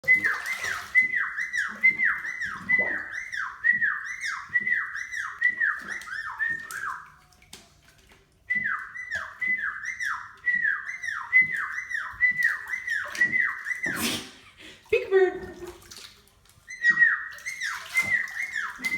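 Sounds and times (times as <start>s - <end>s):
parrot whistling: 0.1s - 7.0s, 8.5s - 14.1s, 16.7s - 18.9s.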